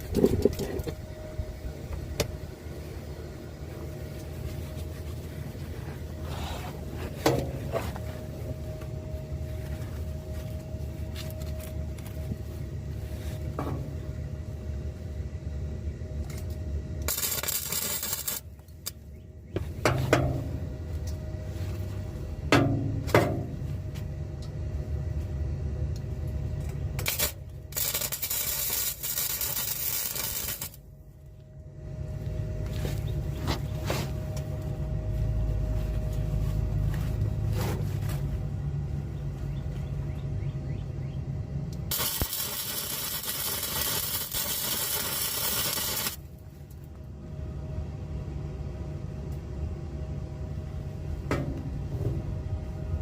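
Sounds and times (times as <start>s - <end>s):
steady low hum: 0.0s - 53.0s
welder arc crackling: 17.0s - 19.0s, 27.0s - 30.8s, 41.9s - 46.3s.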